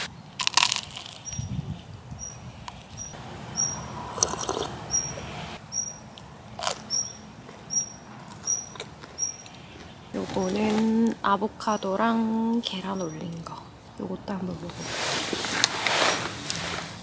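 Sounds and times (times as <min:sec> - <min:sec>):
small bird chirping: 0:01.0 - 0:10.7.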